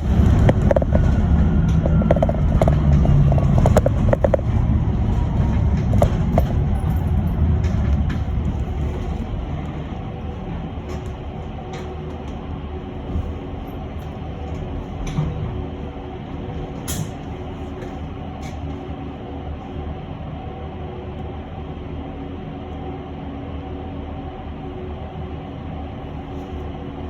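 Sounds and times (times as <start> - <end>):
road rumble: 0.0 - 21.6
small clicks and rattles: 0.1 - 9.3.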